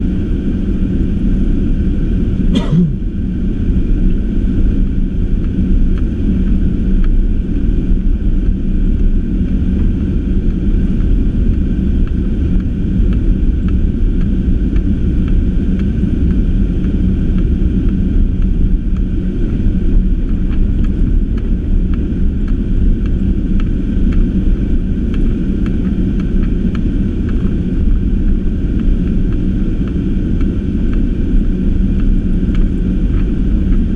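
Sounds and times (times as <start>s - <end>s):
car engine and tyre rumble: 0.0s - 33.9s.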